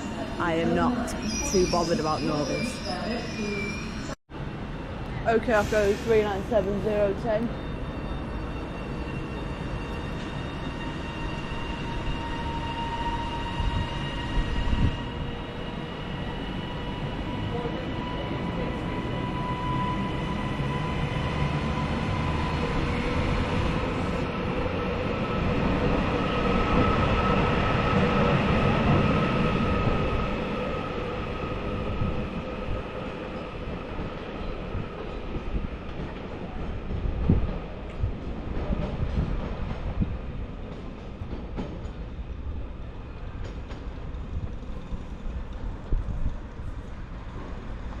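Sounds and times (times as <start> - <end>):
train rumble: 20.1 - 48.0.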